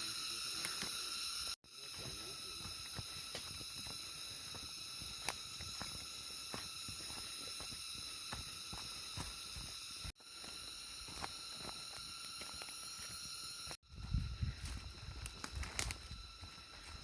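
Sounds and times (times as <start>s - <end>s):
high-pitched drone of held tones: 0.0s - 17.0s
soft footsteps on trail: 1.8s - 17.0s.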